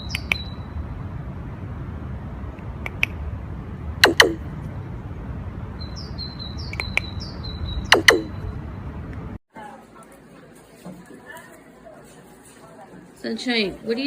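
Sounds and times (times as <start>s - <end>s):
soft bird chirps: 0.0s - 0.8s, 5.8s - 8.6s
bird calls dropping in pitch: 7.8s - 8.4s.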